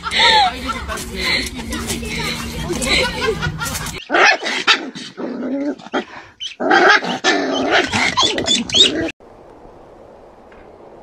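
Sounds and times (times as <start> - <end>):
puppy growling and barking: 4.0 - 9.1.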